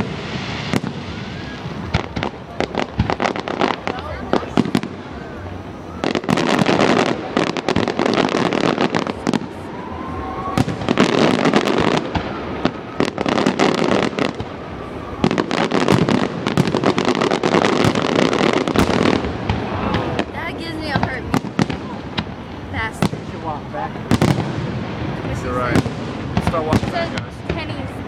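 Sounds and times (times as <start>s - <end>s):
fireworks crackling bangs and pops: 0.0s - 28.0s.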